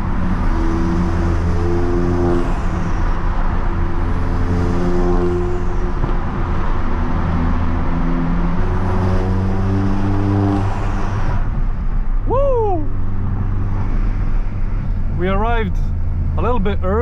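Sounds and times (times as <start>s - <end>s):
car engine drone: 0.0s - 17.0s
road noise: 0.0s - 17.0s.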